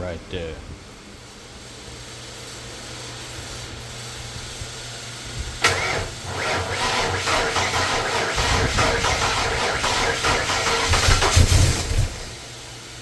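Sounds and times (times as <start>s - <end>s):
car engine starting and running: 5.6s - 12.4s.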